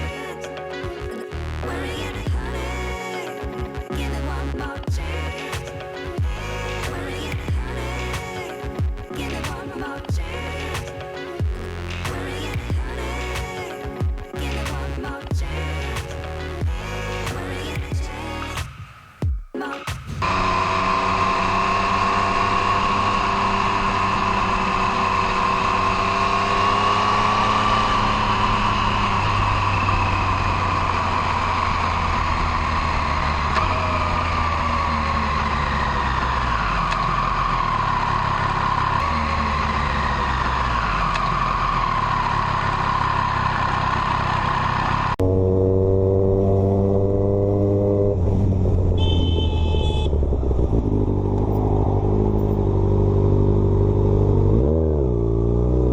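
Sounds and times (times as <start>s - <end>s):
loud engine: 20.2s - 55.9s
motorcycle engines running: 20.4s - 55.9s.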